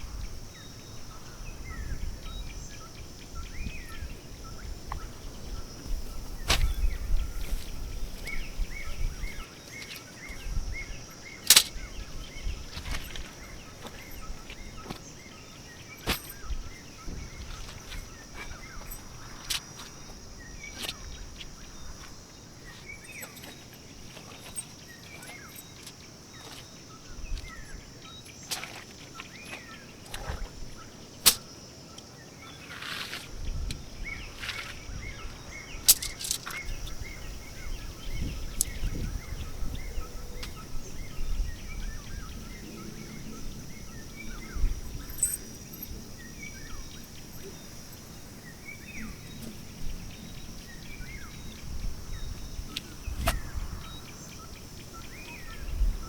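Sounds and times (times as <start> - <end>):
wind rumbling on microphone: 0.0 - 15.4, 16.0 - 23.2, 33.3 - 56.0
high insect drone: 0.0 - 56.0
sharp clicks: 11.4 - 11.8.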